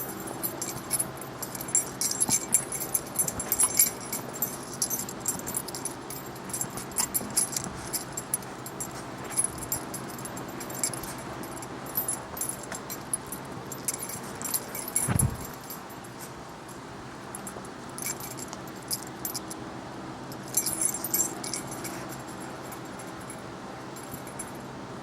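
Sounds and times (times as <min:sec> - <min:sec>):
metallic jingling and clinking: 0:00.0 - 0:19.6, 0:20.3 - 0:24.7
dull thump: 0:15.0 - 0:15.6.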